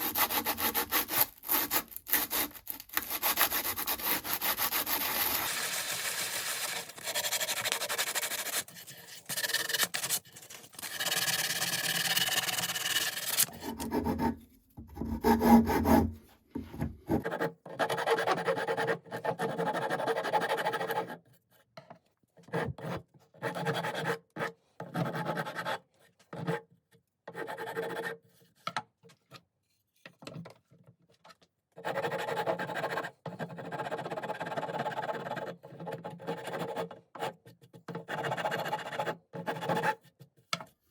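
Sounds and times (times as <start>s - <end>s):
hand tool rasping on wooden handle: 0.0s - 10.2s, 10.8s - 14.3s.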